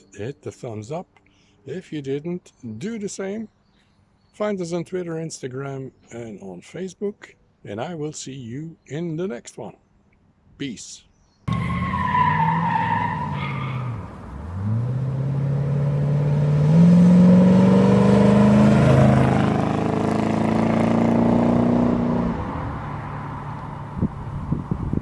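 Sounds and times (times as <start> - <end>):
car engine accelerating: 11.5 - 25.0.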